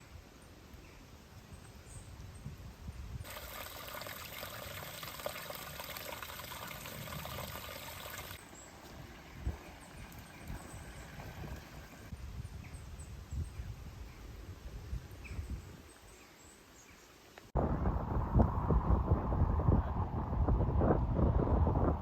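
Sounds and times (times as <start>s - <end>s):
running water trickling: 3.2s - 12.2s
low rumble: 17.6s - 22.0s.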